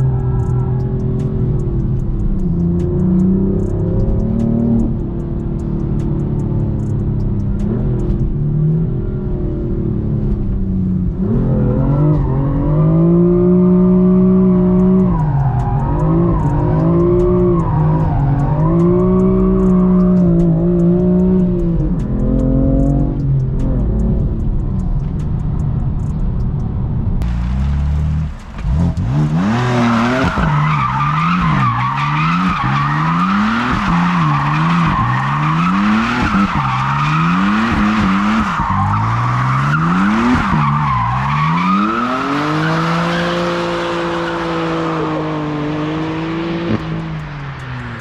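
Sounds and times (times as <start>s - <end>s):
car engine revving: 0.0s - 48.0s
tyres squealing: 29.3s - 45.4s.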